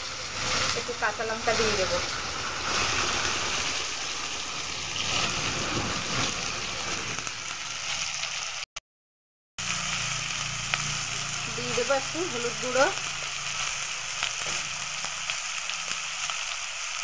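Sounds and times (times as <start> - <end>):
hot oil sizzling: 0.0 - 8.7, 9.6 - 17.0.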